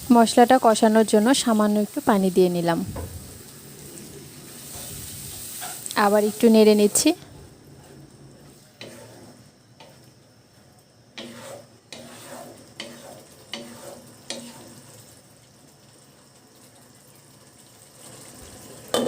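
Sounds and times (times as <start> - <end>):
paste sizzling in a pan: 0.0 - 19.0
spatula scraping a pan: 4.6 - 7.0, 8.5 - 10.1, 11.1 - 15.0.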